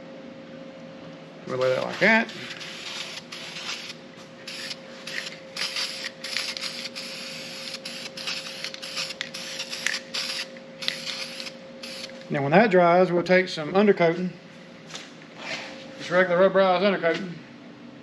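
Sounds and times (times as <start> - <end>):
spray can hissing: 1.7 - 12.1.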